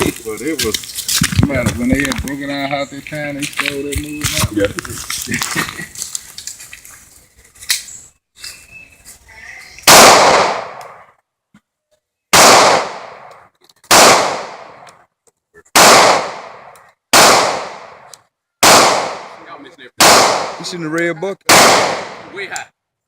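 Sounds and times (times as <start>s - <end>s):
gunshots with echo: 9.9s - 11.0s, 12.3s - 13.3s, 13.9s - 14.8s, 15.8s - 18.0s, 18.6s - 19.4s, 20.0s - 20.7s, 21.5s - 22.3s.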